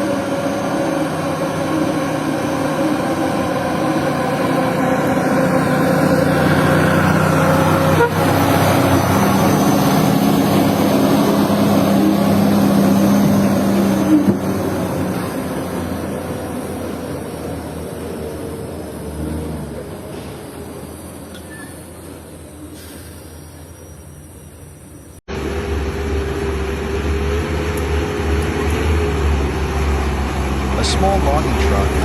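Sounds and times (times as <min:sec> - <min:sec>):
truck engine humming: 0:00.0 - 0:32.0.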